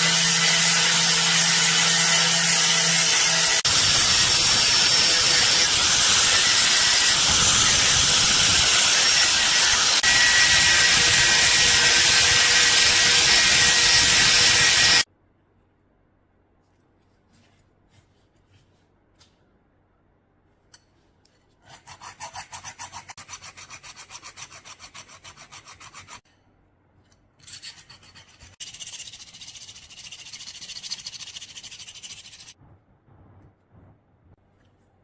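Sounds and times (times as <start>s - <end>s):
hand tool rasping strokes: 0.0s - 15.0s, 21.3s - 26.3s.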